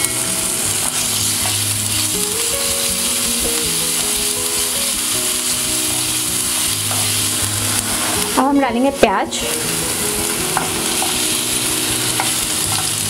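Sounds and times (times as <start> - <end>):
food sizzling in hot oil: 0.0 - 13.0
soft background music: 0.0 - 13.0.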